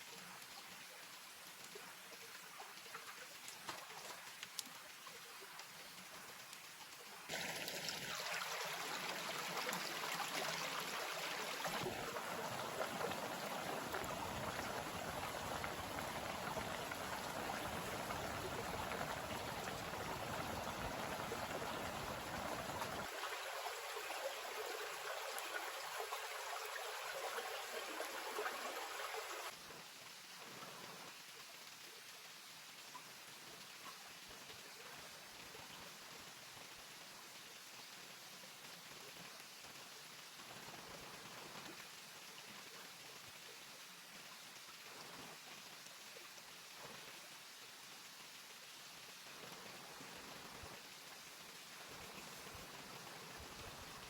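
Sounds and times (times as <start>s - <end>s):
faint hiss: 0.0s - 54.0s
rushing water: 0.0s - 54.0s.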